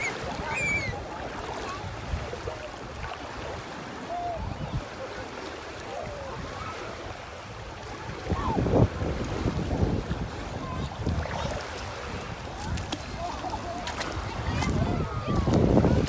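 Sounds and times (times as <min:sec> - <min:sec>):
wind rumble on microphone: 0:00.0 - 0:05.0, 0:05.9 - 0:16.0
sea water lapping and splashing: 0:00.0 - 0:16.0
faint distant voices: 0:10.3 - 0:16.0.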